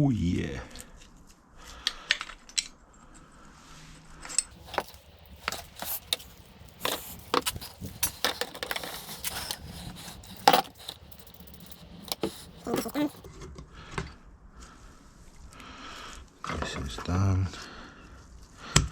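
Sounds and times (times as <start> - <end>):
metal tools clinking: 4.5 - 13.3.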